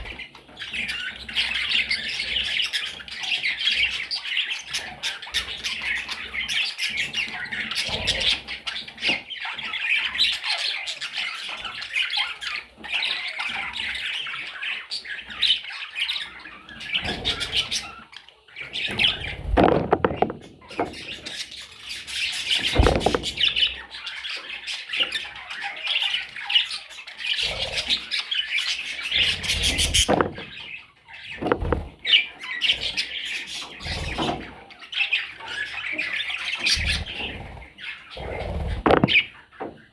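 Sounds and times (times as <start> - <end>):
parrots chattering and squawking: 0.0 - 39.9
loud knocks: 19.3 - 21.0, 22.7 - 23.5, 29.9 - 30.6, 31.4 - 31.9, 38.8 - 39.3.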